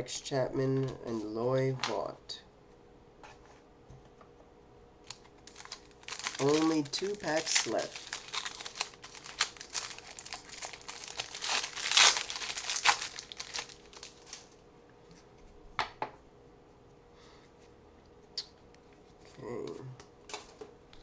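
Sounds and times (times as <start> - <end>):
card pack wrapper tearing: 5.1 - 14.4.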